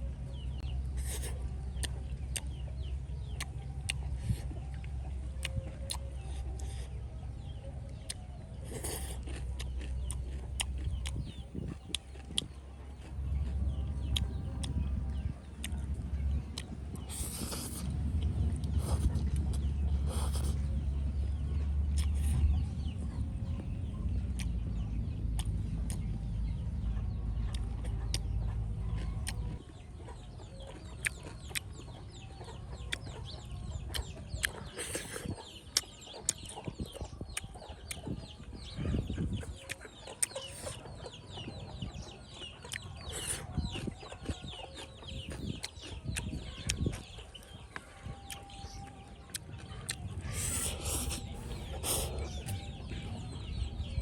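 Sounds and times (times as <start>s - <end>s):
steady low hum: 45.2s - 54.0s.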